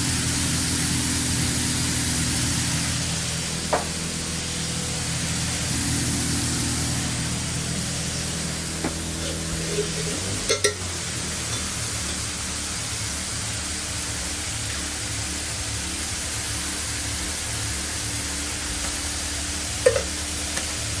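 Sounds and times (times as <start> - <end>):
low machine hum: 0.0 - 21.0
steady hiss: 0.0 - 21.0.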